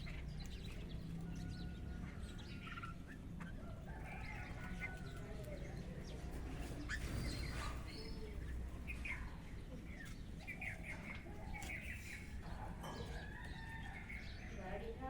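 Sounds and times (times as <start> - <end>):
chickens calling: 0.0 - 15.0
small birds chirping: 0.0 - 15.0
rooster crowing: 13.1 - 14.4.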